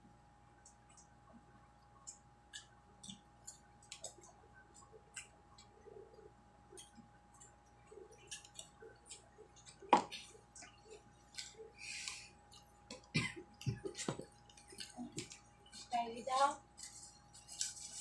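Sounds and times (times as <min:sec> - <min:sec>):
chewing clicks: 0:02.0 - 0:15.9.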